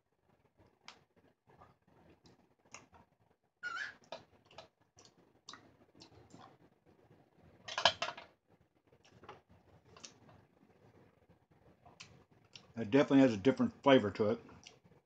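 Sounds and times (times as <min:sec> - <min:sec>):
soft rustles of chewing and handling: 0:00.4 - 0:03.3, 0:04.1 - 0:07.6, 0:08.9 - 0:12.8, 0:14.4 - 0:15.0
mouth clicks while chewing: 0:00.8 - 0:03.0, 0:04.5 - 0:06.6, 0:10.0 - 0:10.2, 0:11.9 - 0:12.8.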